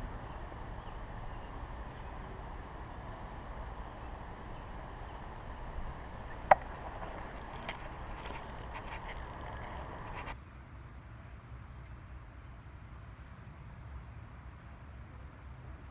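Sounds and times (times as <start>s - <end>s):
light clicks and rattles: 6.5s - 10.4s, 11.4s - 15.9s.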